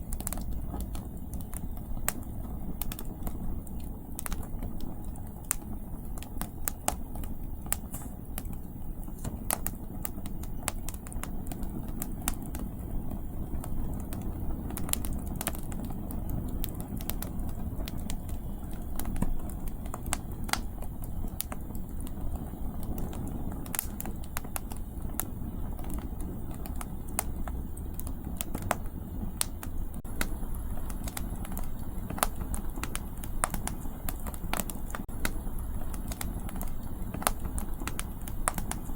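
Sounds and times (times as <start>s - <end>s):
campfire crackling and popping: 0.0s - 38.9s
low rumble of wind: 0.0s - 38.9s.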